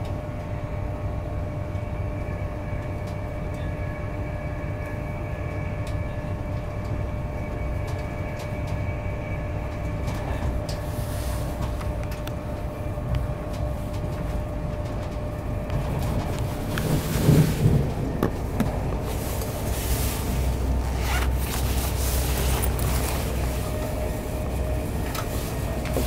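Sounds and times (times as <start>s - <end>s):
train wheels rumbling on rail: 0.0s - 26.0s
faint whine: 0.7s - 26.0s
rustling scrape: 16.3s - 17.9s, 19.0s - 24.6s.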